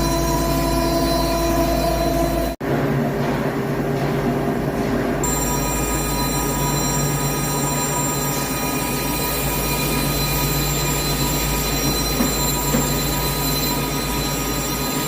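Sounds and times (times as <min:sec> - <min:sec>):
high-pitched whining tones: 0:00.0 - 0:02.6, 0:05.2 - 0:15.0
lathe machine hum: 0:00.0 - 0:02.7, 0:05.2 - 0:15.0.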